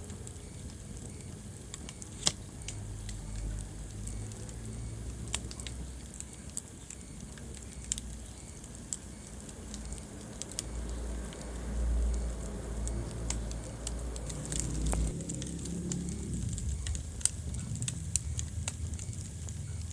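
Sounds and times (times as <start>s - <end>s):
low rumble of burning: 0.0s - 19.9s
wood fire crackling and popping: 0.0s - 19.9s.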